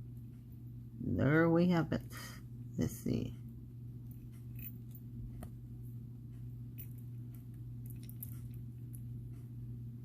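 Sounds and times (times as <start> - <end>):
low hum: 0.0 - 10.0
beads clicking: 6.7 - 9.1.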